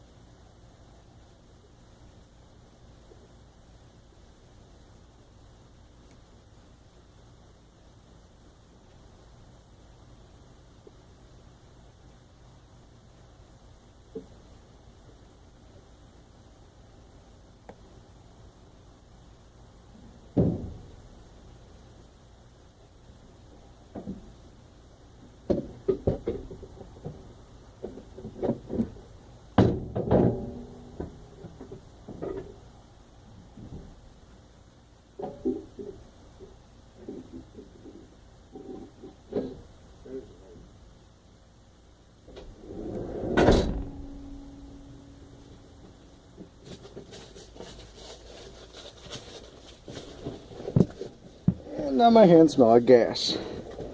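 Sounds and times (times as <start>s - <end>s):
knocks and clunks on metal: 25.5s - 29.0s, 29.6s - 32.6s
loud metal clunk: 29.6s - 31.2s, 42.3s - 45.8s
metal sliding scrape: 42.3s - 45.6s
metal ringing tone: 42.5s - 46.1s.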